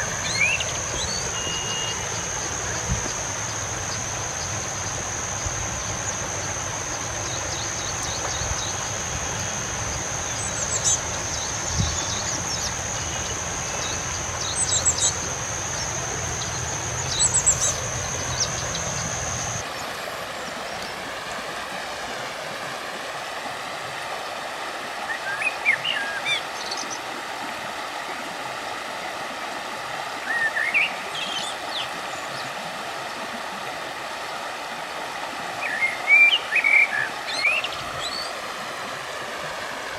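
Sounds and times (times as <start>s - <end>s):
small birds chirping: 0.0s - 19.6s
river water flowing: 0.0s - 39.9s.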